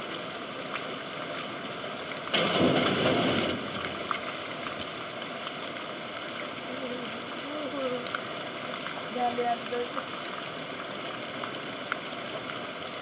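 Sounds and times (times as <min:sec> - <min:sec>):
rush of water: 0:00.0 - 0:13.0
steady rain: 0:00.0 - 0:13.0
scattered drips: 0:00.3 - 0:13.0.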